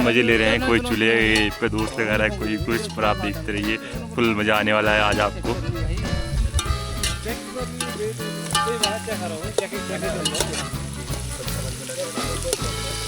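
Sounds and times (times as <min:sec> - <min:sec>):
spitting crackle: 0:06.3 - 0:13.0
food sizzling in a pan: 0:06.5 - 0:13.0.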